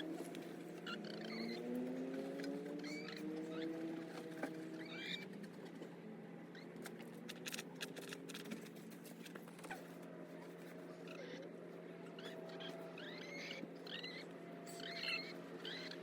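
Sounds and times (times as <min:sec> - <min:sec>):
chickens calling softly: 0:06.6 - 0:16.0.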